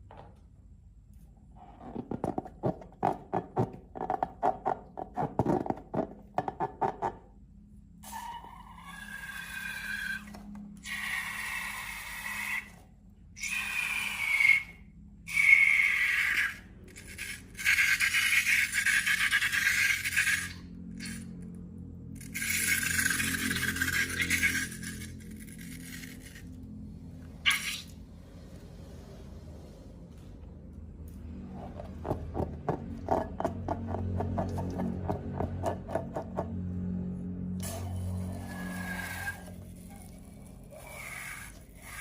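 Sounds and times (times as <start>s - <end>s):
balloon hissing with high squeal: 27.4s - 27.9s.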